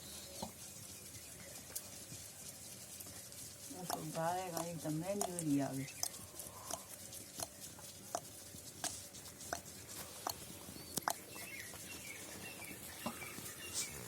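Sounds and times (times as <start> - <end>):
bird pecking on hard surface: 3.8 - 13.6
faint bird chirps: 10.6 - 14.0.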